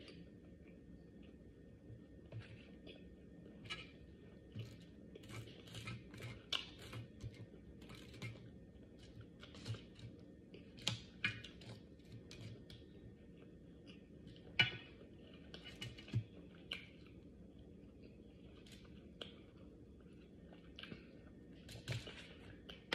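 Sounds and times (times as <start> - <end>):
person chewing: 17.8 - 21.4.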